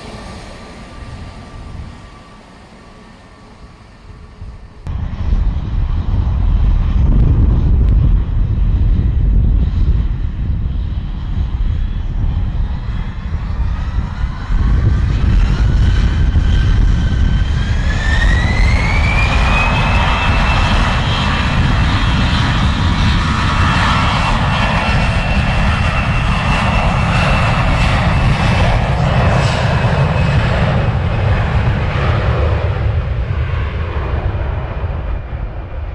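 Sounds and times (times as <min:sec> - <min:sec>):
jet engines spooling up: 0:00.0 - 0:08.0, 0:12.6 - 0:35.9.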